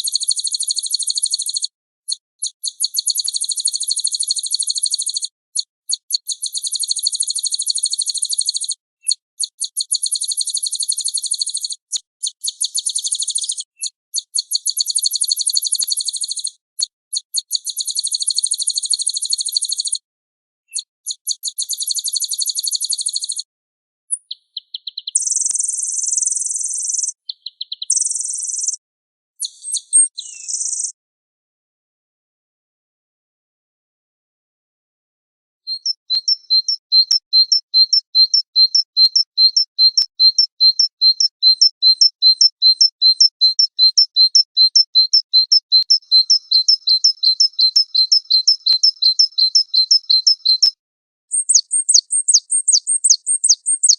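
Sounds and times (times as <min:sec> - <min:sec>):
buzzy bird phrases: 0:24.1 - 0:28.8, 0:29.4 - 0:31.0, 0:35.7 - 0:53.9
songbird trills: 0:24.2 - 0:28.8, 0:29.4 - 0:30.9, 0:35.7 - 0:53.9.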